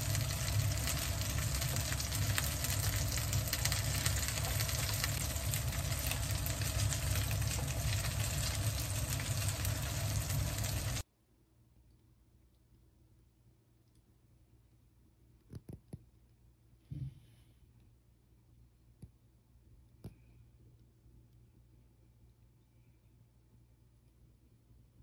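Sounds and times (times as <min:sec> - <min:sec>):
patties sizzling in oil: 0:00.0 - 0:11.0.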